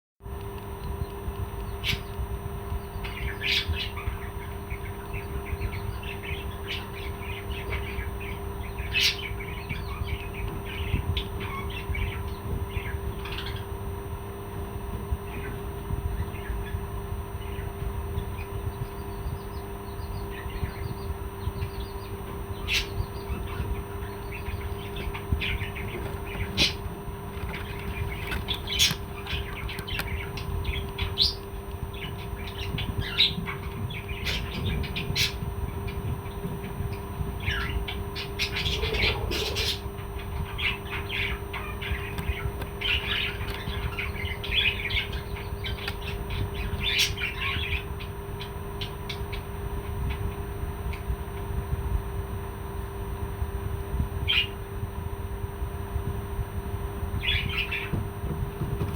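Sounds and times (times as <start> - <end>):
steady low hum: 0.2 - 58.9
parrot chirping and squawking: 3.0 - 13.7, 19.5 - 26.9, 27.5 - 49.4, 57.2 - 57.9.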